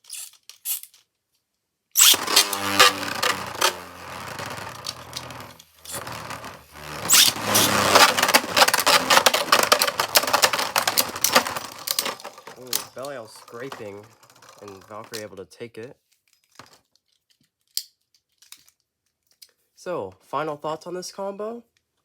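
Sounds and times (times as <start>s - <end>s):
spinning tops whirring and clashing: 2.0s - 15.0s.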